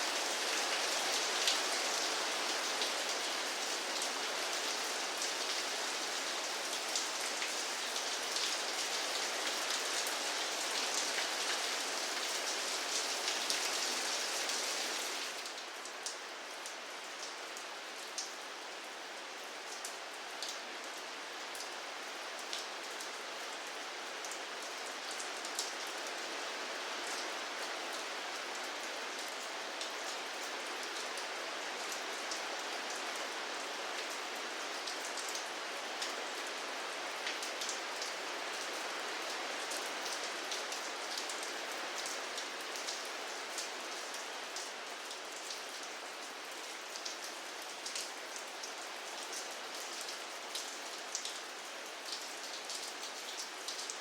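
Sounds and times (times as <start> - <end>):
rain hiss: 0.0 - 54.0.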